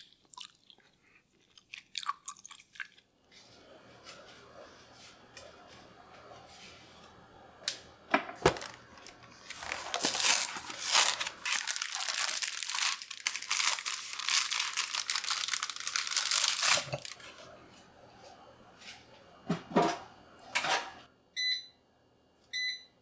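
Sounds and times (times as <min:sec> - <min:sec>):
packaging crinkling and tearing: 0:08.5 - 0:17.3.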